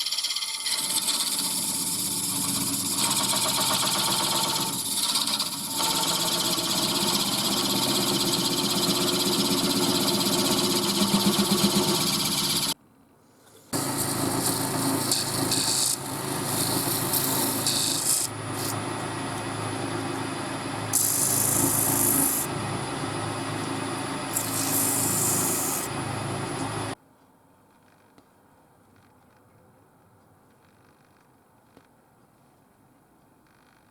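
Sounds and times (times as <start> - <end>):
tool scraping spinning wood: 0.0 - 12.8, 13.8 - 27.0
wood lathe motor hum: 0.0 - 12.8, 13.8 - 27.0.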